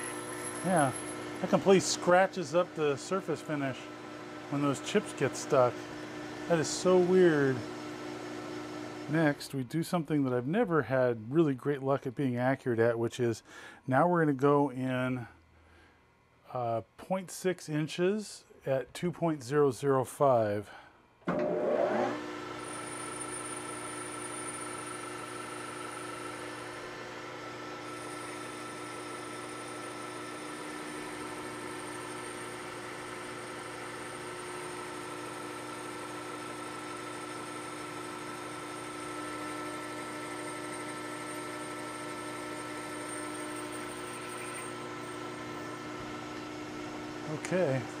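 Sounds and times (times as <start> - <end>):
faint high whine: 0.0 - 2.7
lathe motor whine and hum: 0.0 - 9.4, 21.3 - 48.0.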